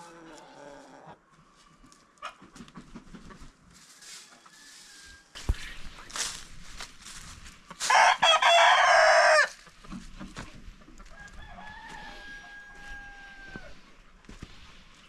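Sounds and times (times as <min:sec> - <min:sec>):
rooster crowing: 0:04.4 - 0:05.4, 0:07.8 - 0:09.6, 0:11.0 - 0:13.8.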